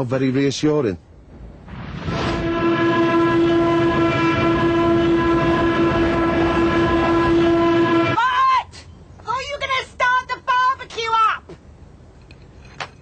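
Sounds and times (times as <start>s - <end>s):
low rumbling noise: 1.1s - 8.2s
loud horn-like blare: 2.1s - 8.2s.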